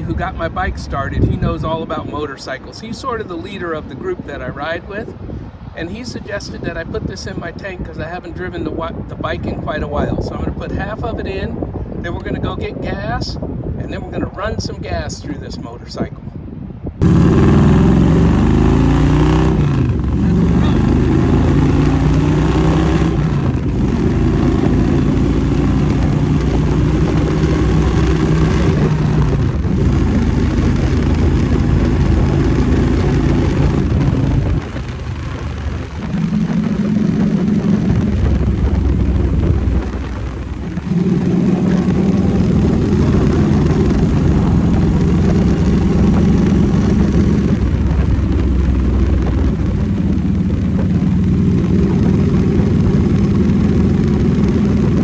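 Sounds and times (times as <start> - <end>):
motorcycle engine drone: 17.0 - 55.0.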